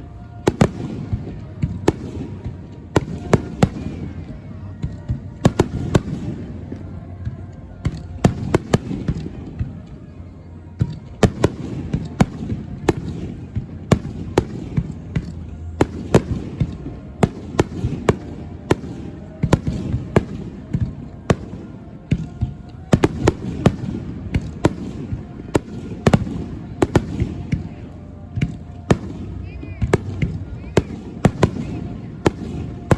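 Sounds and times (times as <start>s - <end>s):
fireworks bangs: 0.0s - 32.9s.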